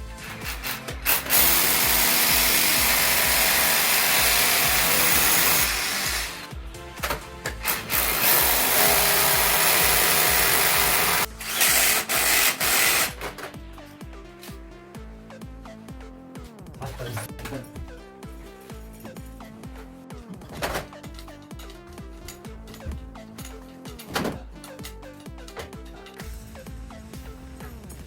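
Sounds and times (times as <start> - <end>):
electric power drill running: 0.0 - 6.6, 7.4 - 13.3
background music: 0.0 - 28.0.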